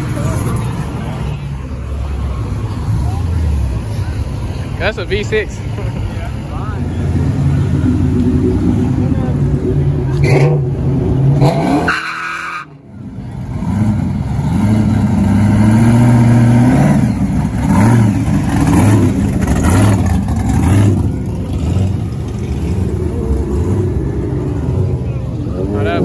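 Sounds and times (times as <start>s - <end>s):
car engine revving: 5.8s - 26.0s.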